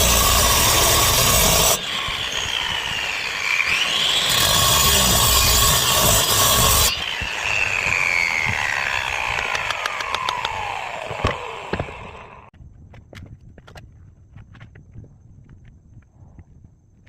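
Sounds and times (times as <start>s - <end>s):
angle grinder cutting stone: 0.0s - 12.5s
grinder disc whining down: 0.0s - 12.5s.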